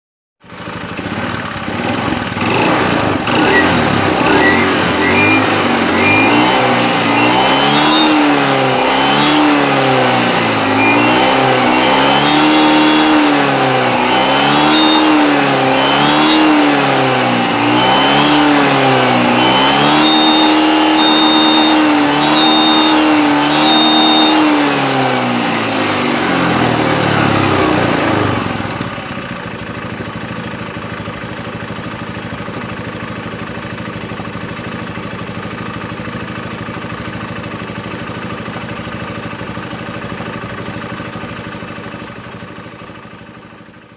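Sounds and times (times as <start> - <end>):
motorcycle engine revving: 0.4 - 43.9
turbo whistle: 3.4 - 9.4, 10.7 - 13.2, 14.0 - 16.8, 17.6 - 25.0.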